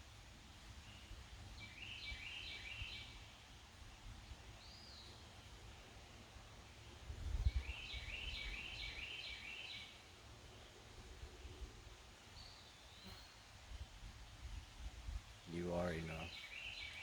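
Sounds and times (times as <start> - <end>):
songbird singing: 0.0 - 17.0
wind rumble on microphone: 7.0 - 9.1, 13.6 - 16.2.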